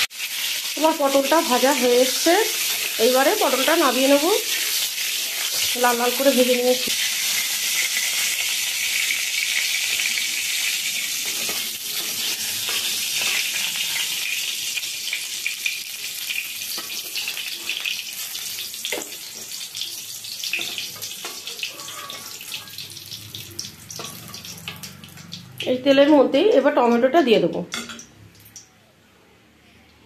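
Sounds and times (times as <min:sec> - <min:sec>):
vegetables sizzling in hot oil: 0:00.0 - 0:26.6
metal spatula scraping pan: 0:11.0 - 0:14.3, 0:20.5 - 0:23.0, 0:24.0 - 0:24.9.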